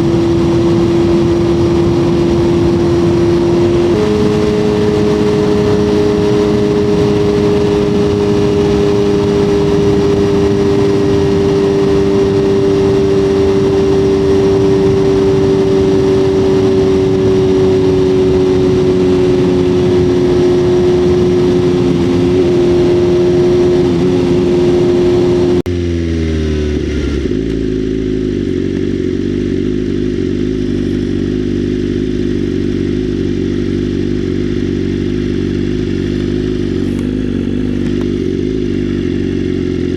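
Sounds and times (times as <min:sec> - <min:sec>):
wind rush: 0:00.0 - 0:25.7
motorcycle engine running: 0:00.0 - 0:39.9.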